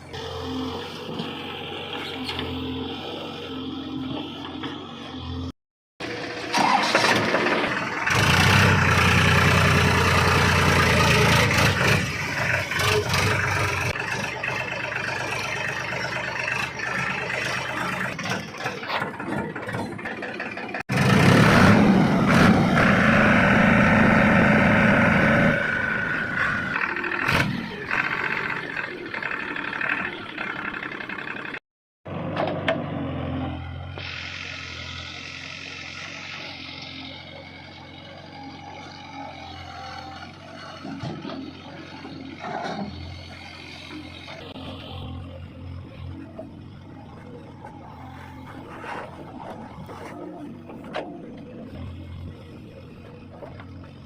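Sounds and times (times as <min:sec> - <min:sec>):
heavy diesel engines revving: 0:00.0 - 0:54.0.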